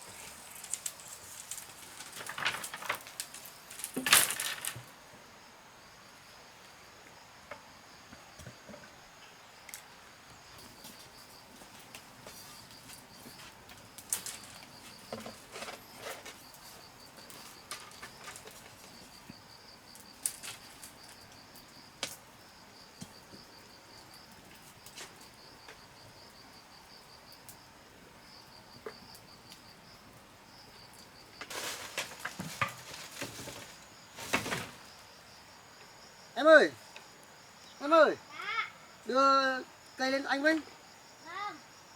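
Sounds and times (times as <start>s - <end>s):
rustling: 0.0s - 5.0s, 10.6s - 19.3s, 31.4s - 35.2s
insect trilling: 34.8s - 41.8s.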